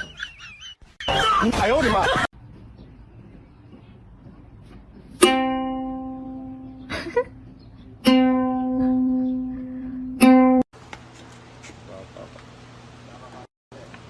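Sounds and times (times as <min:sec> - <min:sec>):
plucked string note ringing: 0:05.2 - 0:06.8, 0:08.0 - 0:10.6.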